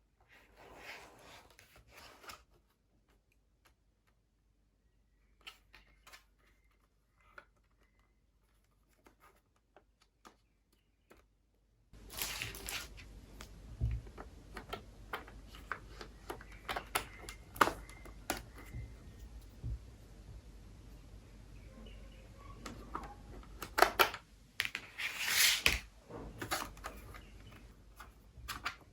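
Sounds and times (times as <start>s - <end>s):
fan hiss with low hum: 12.0s - 28.9s.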